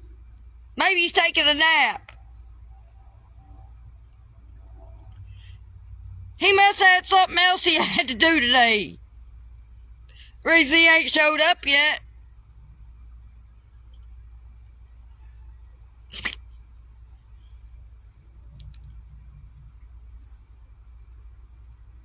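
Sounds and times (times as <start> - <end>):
insects trilling: 0.0 - 22.0
sharp click: 16.1 - 16.4.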